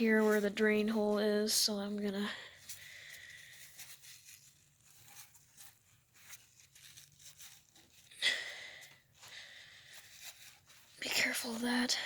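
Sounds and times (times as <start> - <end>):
hands rustling and scraping dirt: 2.5 - 8.2.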